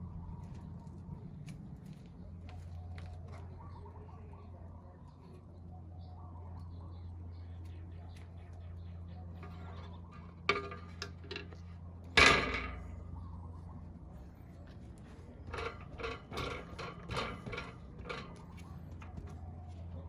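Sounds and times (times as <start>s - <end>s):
steady low hum: 0.0s - 20.0s
tools clattering: 9.4s - 13.0s, 15.5s - 19.2s.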